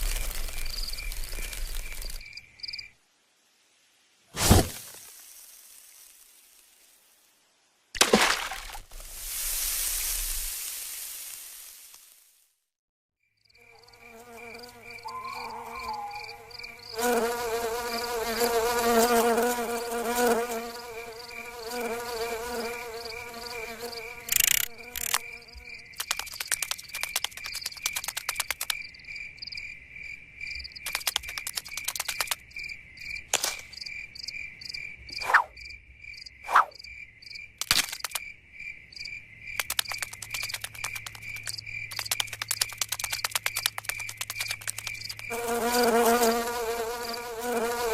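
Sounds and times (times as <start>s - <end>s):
buzz of insect wings: 0.0s - 2.8s, 13.6s - 28.7s, 39.6s - 47.9s
cricket-like chirping: 0.0s - 3.0s, 9.2s - 11.0s, 13.2s - 47.9s
scattered clicks: 24.3s - 25.2s, 26.0s - 28.8s, 30.8s - 32.5s, 37.6s - 38.3s, 39.6s - 45.2s
short swooping tones: 35.2s - 35.5s, 36.5s - 36.8s.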